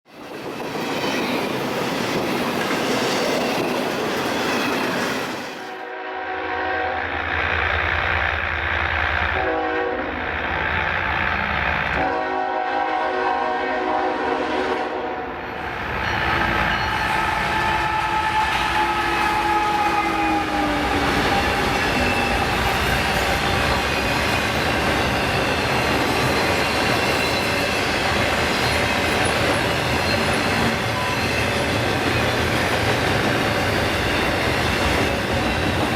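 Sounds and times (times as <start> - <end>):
train rumbling: 0.1 - 35.9
locomotive air horn blasts: 5.8 - 7.2, 9.3 - 10.3, 11.9 - 15.4, 16.9 - 21.6.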